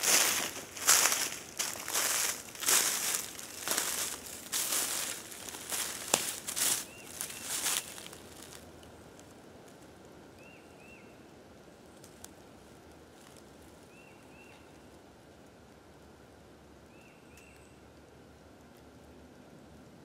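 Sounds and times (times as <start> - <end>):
bird chirping: 5.7 - 8.1
light tick: 17.3 - 17.6.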